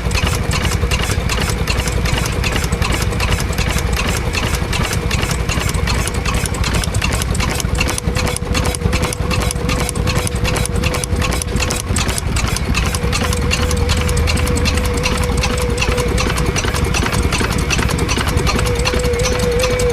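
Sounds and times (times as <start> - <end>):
engine running: 0.0 - 19.9
steady whine: 5.7 - 19.9.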